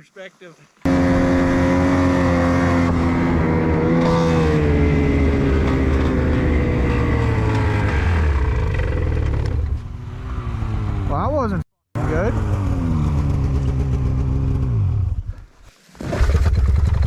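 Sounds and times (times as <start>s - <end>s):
snowmobile engine running hard: 0.9s - 9.5s.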